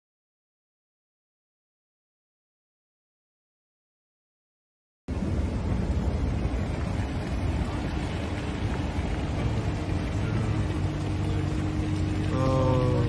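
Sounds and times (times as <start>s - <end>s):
car engine rumble: 5.1s - 13.0s
faint steady hum: 5.1s - 13.0s.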